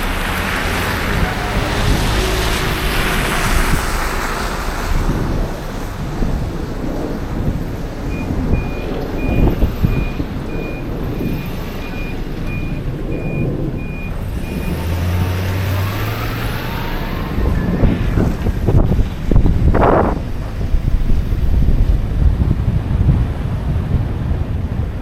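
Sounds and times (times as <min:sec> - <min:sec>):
street traffic rumble: 0:00.0 - 0:25.0
reversing alarm beeping: 0:08.1 - 0:18.0.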